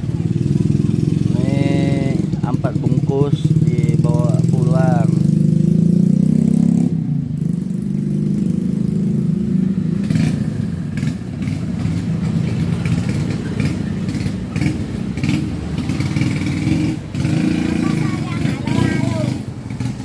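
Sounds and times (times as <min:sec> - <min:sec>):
small motorcycle engine running: 0:07.4 - 0:20.0.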